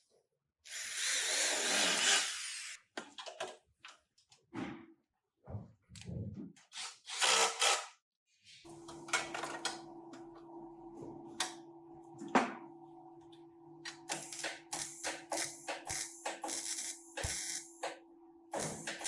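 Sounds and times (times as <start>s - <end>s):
steady machine hum: 8.7s - 19.0s.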